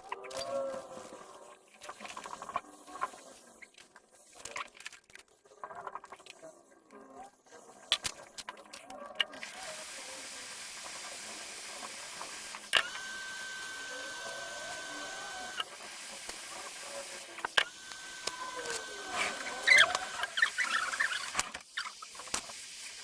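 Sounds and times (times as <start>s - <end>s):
hot air blower hissing: 9.7s - 21.3s.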